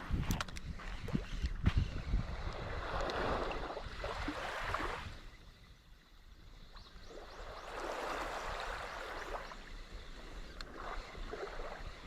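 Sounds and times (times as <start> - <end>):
water lapping against a boat: 6.7 - 12.0.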